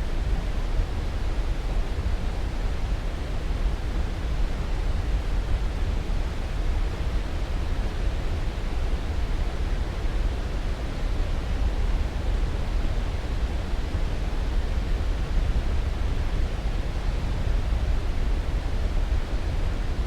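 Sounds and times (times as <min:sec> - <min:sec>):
steady white noise hiss: 0:00.0 - 0:20.0.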